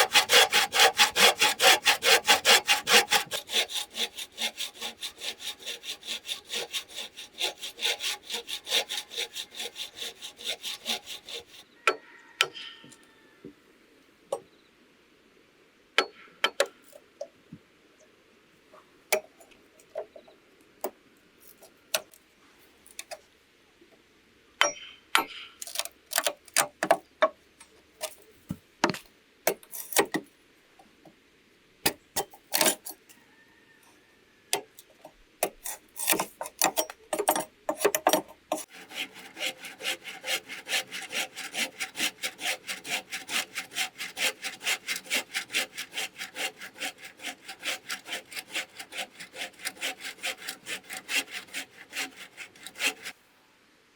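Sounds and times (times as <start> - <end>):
hand saw cutting bamboo: 0.0 - 11.6, 29.5 - 30.2, 31.9 - 33.0, 35.4 - 53.2.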